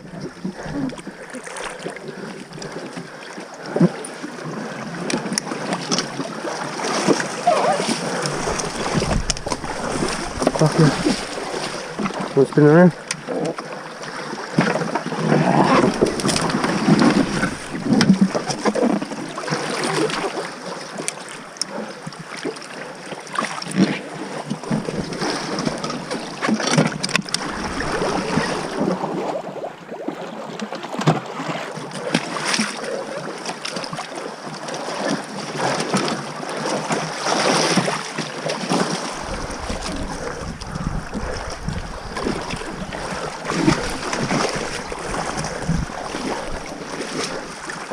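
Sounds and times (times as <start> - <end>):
water splashing around a boat: 0.0 - 47.9
wind buffeting microphone: 7.5 - 12.2, 39.1 - 47.7.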